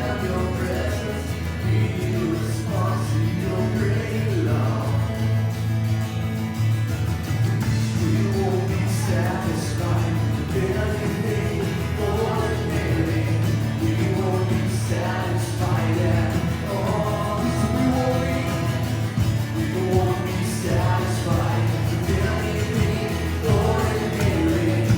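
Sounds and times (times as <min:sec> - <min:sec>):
lead singer singing: 0:00.0 - 0:05.5, 0:07.7 - 0:24.9
band playing worship song: 0:00.0 - 0:05.9, 0:07.3 - 0:24.9
bass line: 0:00.0 - 0:24.9.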